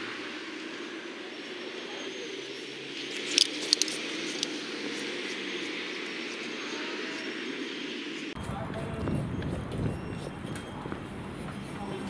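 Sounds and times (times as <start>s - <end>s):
vehicle engine running: 2.4s - 6.5s
sharp clicks: 3.1s - 4.6s.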